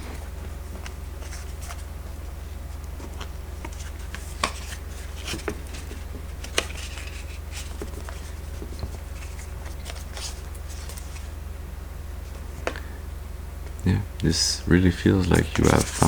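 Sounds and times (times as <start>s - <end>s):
steady low hum: 0.0s - 16.0s
cards tapping and rustling: 0.7s - 1.9s, 2.8s - 11.3s, 15.2s - 16.0s.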